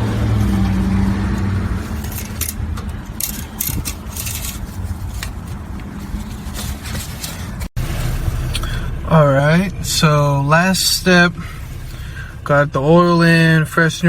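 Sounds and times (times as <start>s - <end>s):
scraping and rustling handling: 0.0s - 8.5s
low background rumble: 0.0s - 14.0s.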